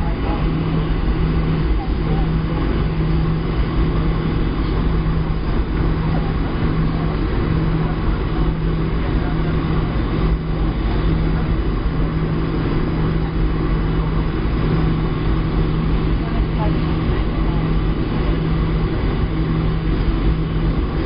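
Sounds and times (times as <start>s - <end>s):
airplane cabin engine noise: 0.0s - 21.0s
low hum: 0.0s - 21.0s.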